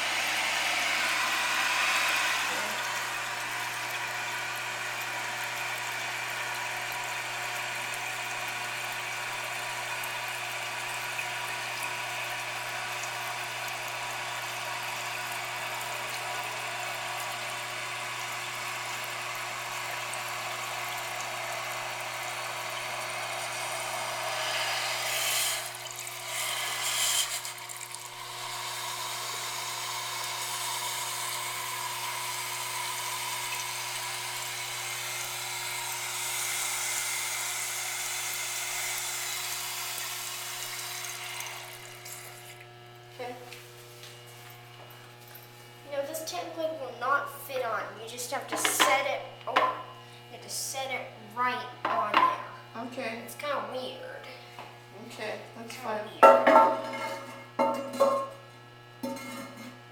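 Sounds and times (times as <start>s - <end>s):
thin drill-like whine: 0.0s - 5.6s, 21.6s - 42.8s
toilet tank refilling hiss: 0.0s - 42.6s.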